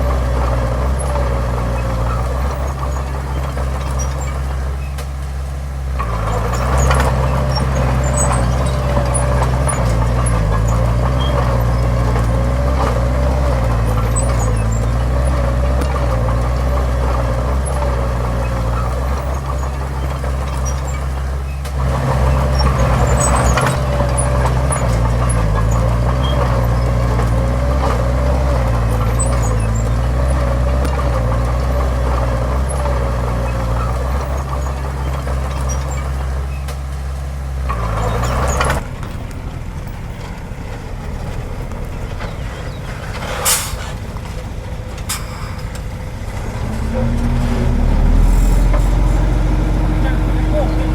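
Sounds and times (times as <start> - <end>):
heavy diesel engine running hard: 0.0 - 50.9.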